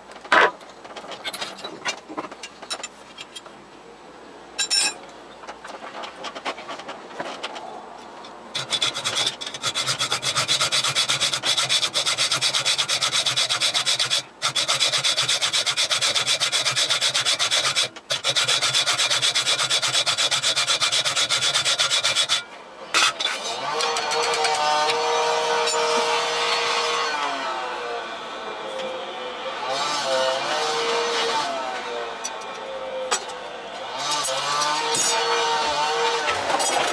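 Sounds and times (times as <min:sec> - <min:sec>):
metal scraping on lathe: 0:08.6 - 0:27.2, 0:34.1 - 0:36.9.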